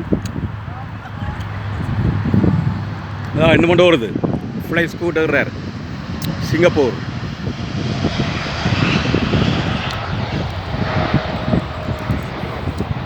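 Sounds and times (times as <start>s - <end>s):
airliner jet engines rumbling: 0.0s - 13.0s.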